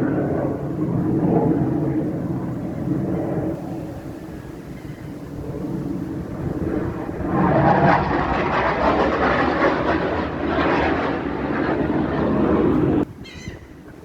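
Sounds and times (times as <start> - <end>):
aircraft engines flying past: 0.0 - 14.0.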